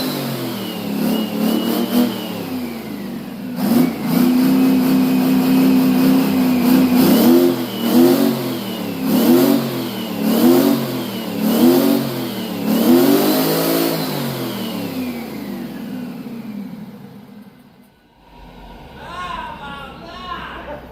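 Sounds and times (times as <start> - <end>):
diesel engine revving: 0.0 - 20.9
turbo whine: 0.9 - 10.3.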